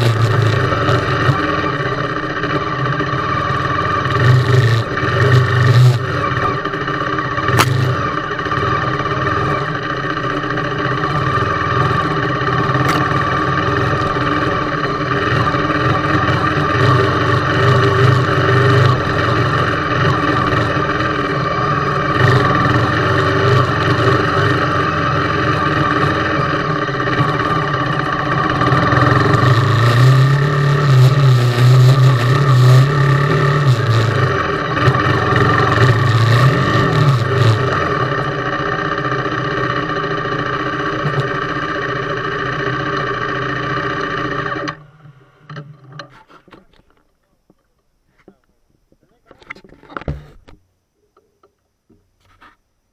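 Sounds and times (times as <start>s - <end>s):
motorcycle engine running: 0.0s - 47.0s
sharp click: 7.5s - 8.0s.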